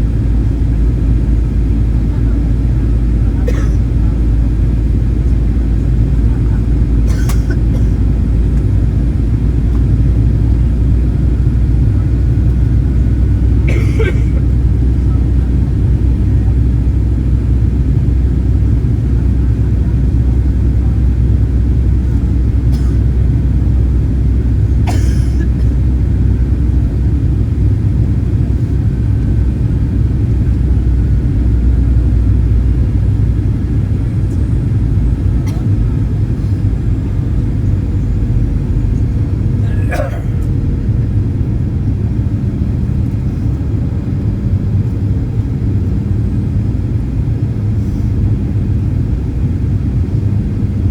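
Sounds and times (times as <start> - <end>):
airliner cabin engine rumble: 0.0 - 50.9.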